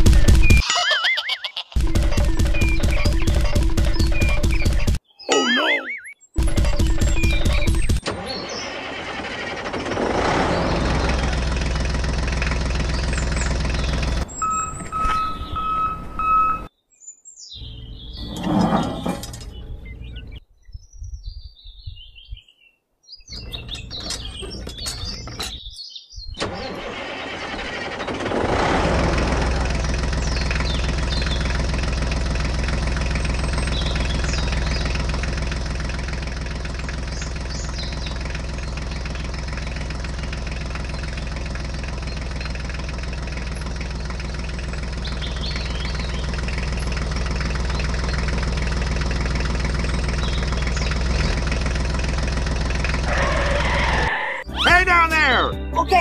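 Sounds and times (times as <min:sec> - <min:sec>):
engine starting and idling: 0:01.8 - 0:05.0, 0:06.4 - 0:15.8, 0:23.3 - 0:25.7, 0:26.3 - 0:54.4.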